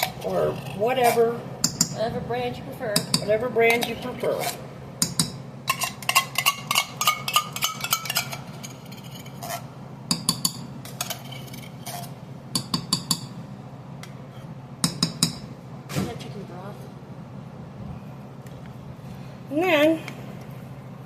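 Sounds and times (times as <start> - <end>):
steady low hum: 0.0 - 21.0
metal utensil clinking on cookware: 5.0 - 9.3.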